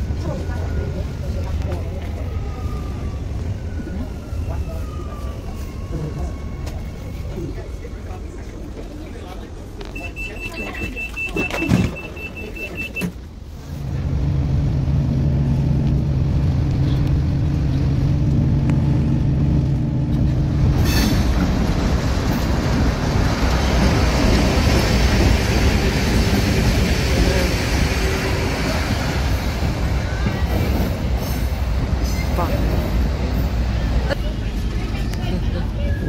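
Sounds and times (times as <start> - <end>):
steady high beep: 10.0 - 13.0
rushing noise of moving vehicle: 10.6 - 36.0
heavy vehicle engine hum: 13.0 - 36.0.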